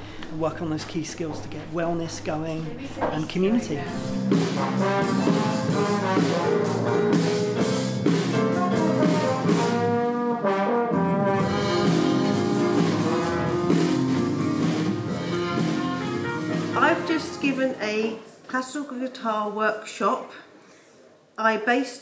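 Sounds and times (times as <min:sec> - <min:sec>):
percussion beat: 0:00.0 - 0:09.6
brass ensemble playing: 0:01.2 - 0:17.8.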